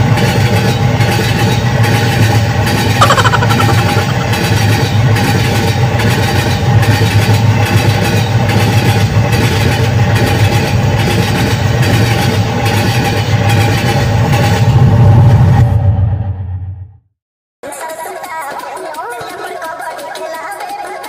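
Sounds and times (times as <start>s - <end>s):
locomotive chugging: 0.0s - 14.6s.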